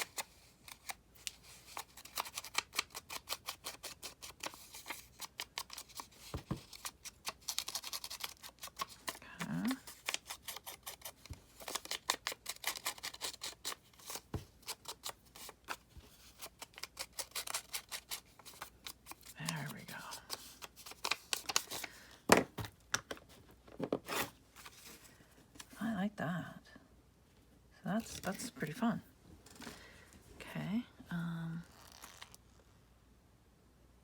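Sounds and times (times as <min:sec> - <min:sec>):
scissors snipping paper: 0:00.0 - 0:15.8, 0:16.4 - 0:19.7.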